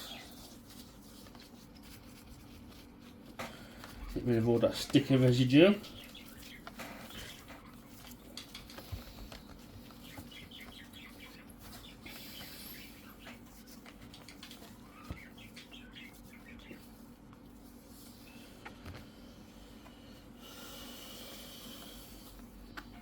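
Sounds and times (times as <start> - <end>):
tissue squeaking on plastic: 3.9 - 8.9, 9.5 - 18.4.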